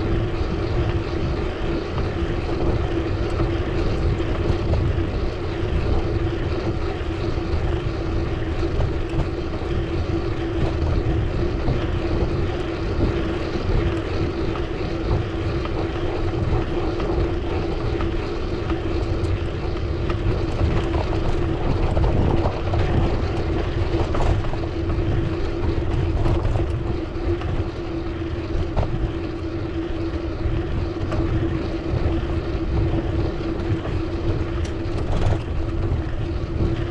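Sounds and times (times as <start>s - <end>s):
constant hum: 0.0s - 36.9s
wind rumbling on microphone: 0.0s - 36.9s.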